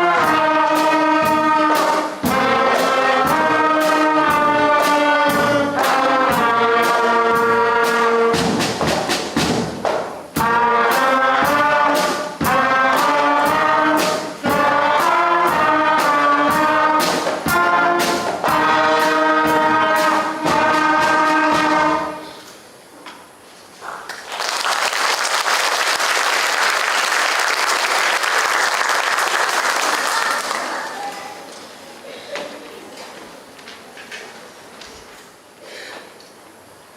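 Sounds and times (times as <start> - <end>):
school concert band playing: 0.0 - 23.4, 24.1 - 33.5
audience applauding: 23.8 - 31.1.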